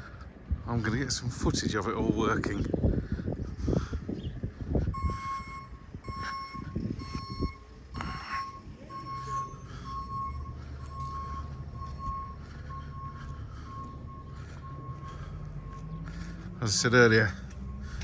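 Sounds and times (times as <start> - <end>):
engine running: 4.4 - 18.0
reversing alarm beeping: 5.0 - 18.0.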